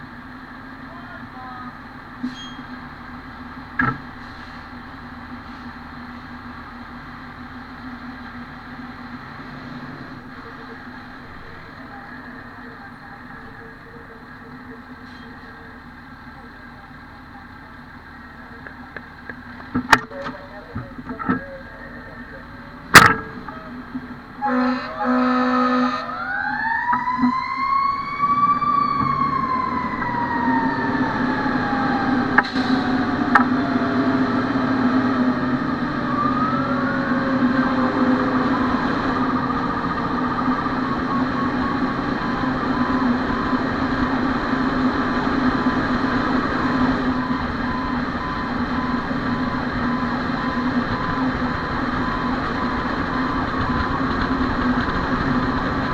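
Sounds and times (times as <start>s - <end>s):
fire engine siren: 0.0s - 55.9s
truck engine drone: 0.0s - 55.9s
short horn-like tone: 24.4s - 26.2s.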